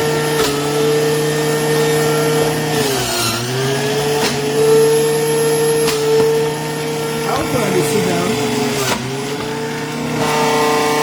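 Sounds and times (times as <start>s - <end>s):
electric juicer motor whining: 0.0s - 11.0s.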